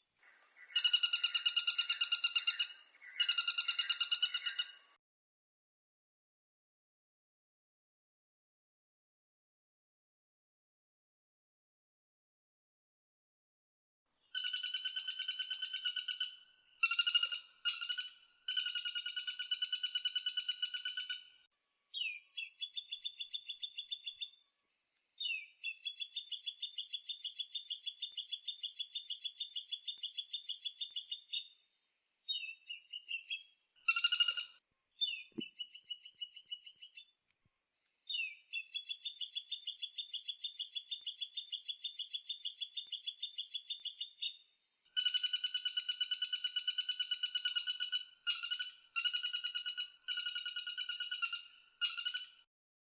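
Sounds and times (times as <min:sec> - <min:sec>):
woodpecker calls: 0:00.0 - 0:05.0, 0:14.3 - 0:21.4, 0:25.2 - 0:31.6, 0:32.3 - 0:37.2, 0:38.1 - 0:44.4, 0:45.0 - 0:52.4.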